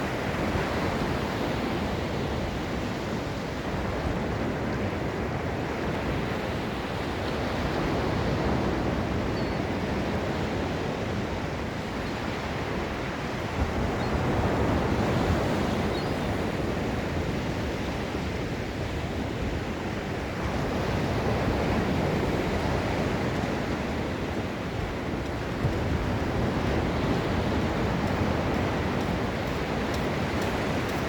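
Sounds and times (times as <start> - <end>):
waves breaking on a beach: 0.0 - 31.0.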